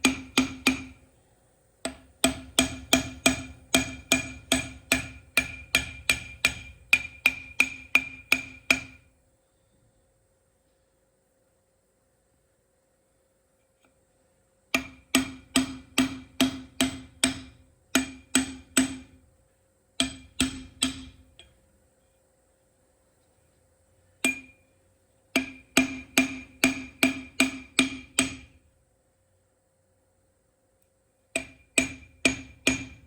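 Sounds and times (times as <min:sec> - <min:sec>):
hammer tapping on metal: 0:00.0 - 0:01.0, 0:01.8 - 0:09.0, 0:14.7 - 0:19.2, 0:20.0 - 0:21.6, 0:24.2 - 0:24.6, 0:25.3 - 0:28.6, 0:31.3 - 0:33.0.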